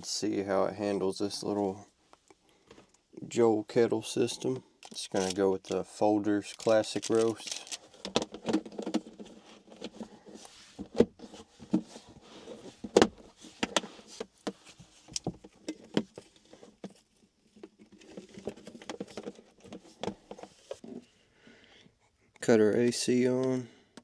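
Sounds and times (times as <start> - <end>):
clicks and knocks of gear handled: 6.5 - 9.2.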